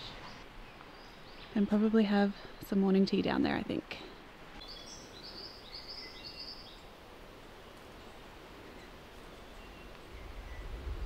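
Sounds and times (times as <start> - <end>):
forest background hiss: 0.0 - 11.0
bird chirping: 4.6 - 6.9
low rumble: 10.0 - 11.0.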